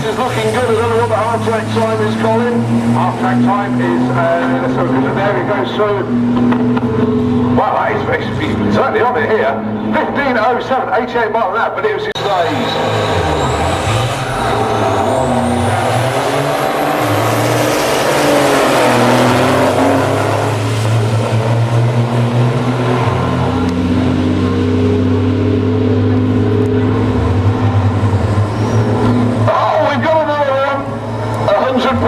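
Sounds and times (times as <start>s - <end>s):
diesel truck engine revving hard: 0.0s - 11.0s, 12.2s - 32.0s.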